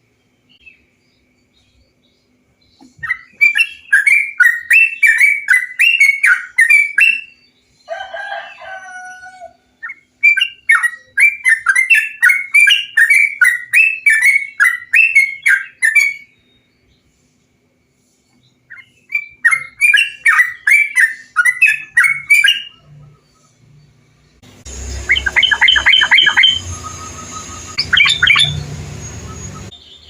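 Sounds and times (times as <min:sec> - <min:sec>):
bulbul bubbling song: 0:24.7 - 0:29.8
harsh low bird chattering: 0:25.0 - 0:28.6.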